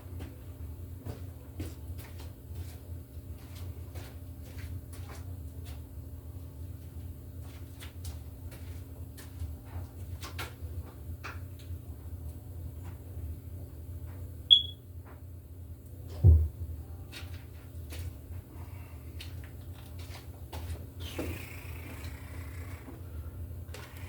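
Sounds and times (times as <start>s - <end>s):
high-pitched electronic beep: 14.5s - 14.8s.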